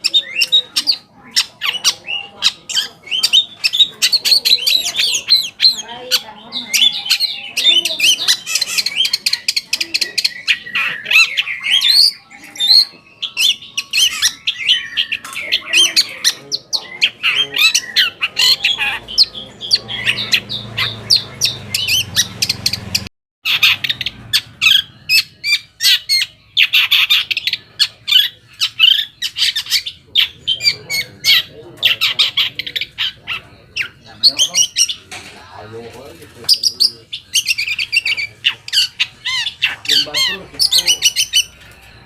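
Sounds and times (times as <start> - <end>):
shrike chattering song: 0.0 - 42.0.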